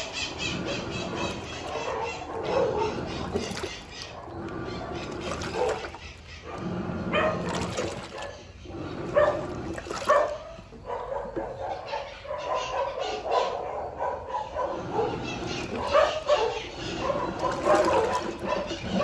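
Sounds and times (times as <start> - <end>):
agitator squealing whine: 0.0 - 10.8, 14.7 - 19.0
washing machine sloshing and churning: 0.0 - 19.0.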